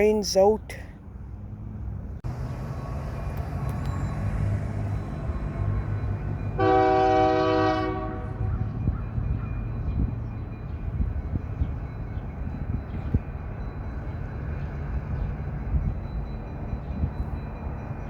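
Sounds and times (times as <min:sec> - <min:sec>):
locomotive horn blast: 0:06.5 - 0:08.8.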